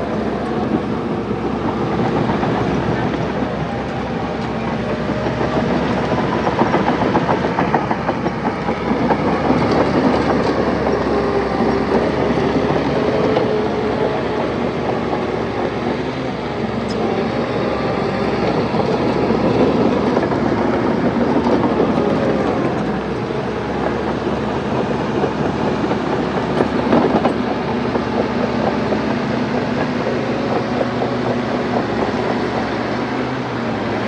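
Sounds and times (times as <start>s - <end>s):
bulldozer diesel engine: 0.0s - 34.0s
steel tracks clanking: 0.0s - 34.0s.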